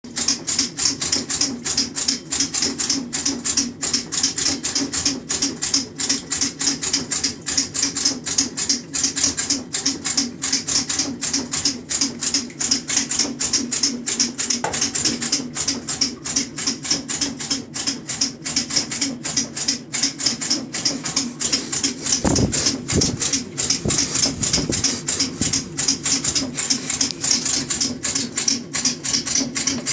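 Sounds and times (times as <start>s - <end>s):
washer agitating with rapid clicking: 0.1s - 29.9s
steady low hum: 20.1s - 28.6s.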